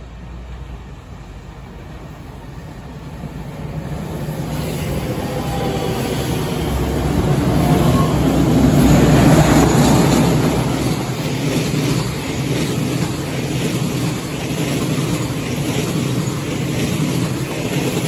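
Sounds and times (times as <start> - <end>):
electric train wheels rumbling: 0.0 - 18.0
freight train passing: 0.0 - 18.0.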